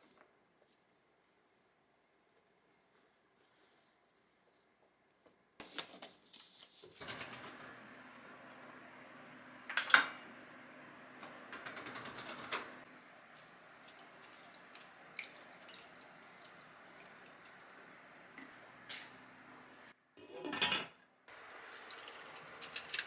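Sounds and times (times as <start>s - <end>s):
dishes and utensils clinking: 13.4s - 19.2s.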